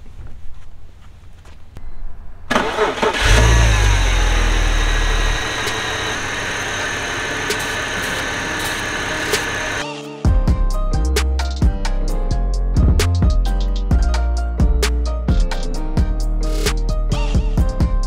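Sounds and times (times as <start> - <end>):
car engine cranking: 2.5 - 9.8
car engine idling: 2.5 - 9.8.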